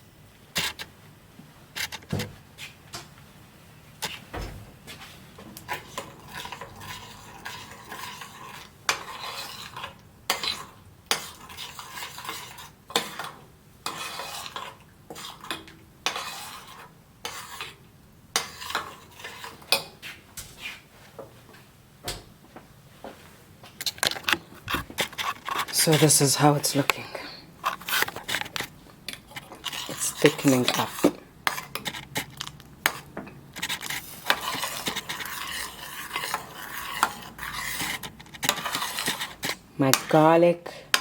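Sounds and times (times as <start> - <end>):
utensil stirring sauce in pot: 5.6 - 20.0, 23.8 - 40.3.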